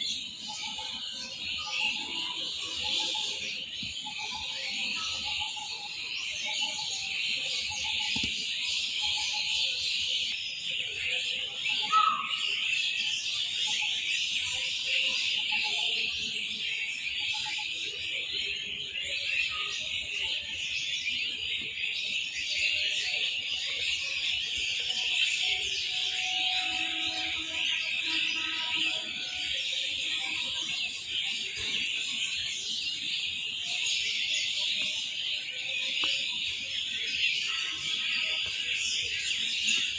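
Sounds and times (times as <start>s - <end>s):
small birds chirping chorus: 0.0s - 39.9s
lower bird calls: 11.8s - 12.4s, 25.4s - 29.5s.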